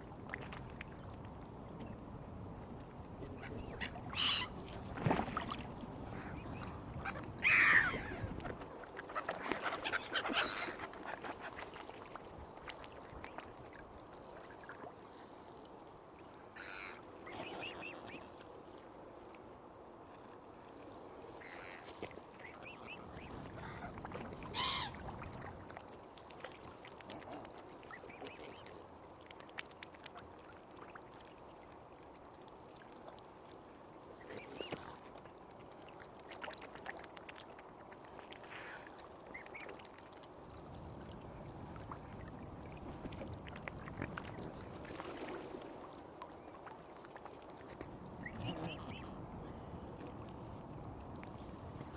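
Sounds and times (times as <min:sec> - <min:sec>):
lapping water: 0:02.7 - 0:19.1, 0:20.1 - 0:51.9
waterfowl calling: 0:03.4 - 0:04.6, 0:06.1 - 0:11.2, 0:22.4 - 0:25.0.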